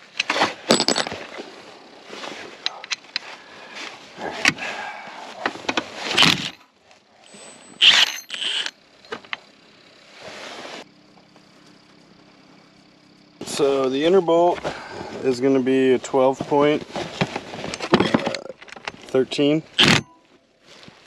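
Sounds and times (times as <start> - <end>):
faint steady hum: 0.0 - 21.0
metal tools clinking and scraping: 5.5 - 9.4, 17.3 - 19.2.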